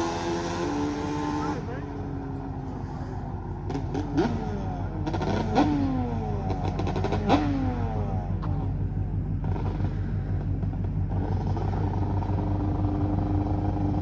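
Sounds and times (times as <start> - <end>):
two-stroke engine revving: 0.0 - 2.2, 2.9 - 14.0
exhaust crackling: 0.0 - 14.0.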